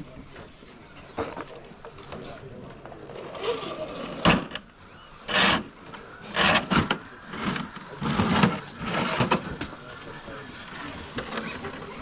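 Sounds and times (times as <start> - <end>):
toy truck tires scraping rock: 3.1 - 10.1, 10.7 - 12.0.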